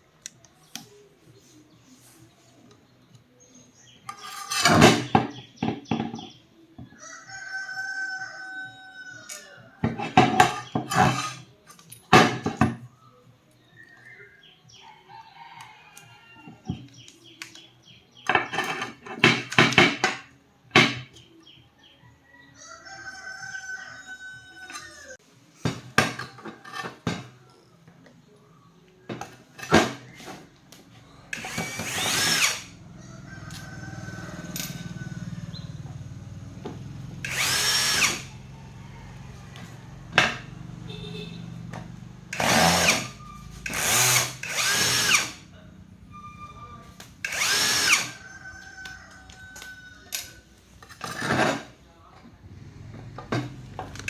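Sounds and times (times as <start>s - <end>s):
metal tools knocking and clattering: 4.1s - 6.3s, 9.8s - 12.9s, 18.2s - 21.2s, 25.6s - 27.4s, 50.1s - 51.8s
rooster crowing: 6.9s - 10.1s, 14.8s - 16.6s, 21.9s - 25.2s, 31.1s - 41.5s, 46.1s - 50.6s.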